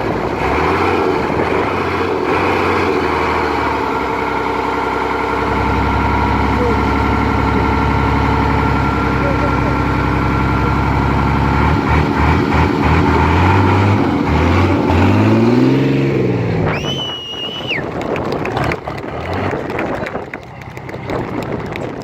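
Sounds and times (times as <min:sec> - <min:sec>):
diesel engine revving hard: 0:00.0 - 0:21.8
shrill whistle: 0:16.7 - 0:17.8.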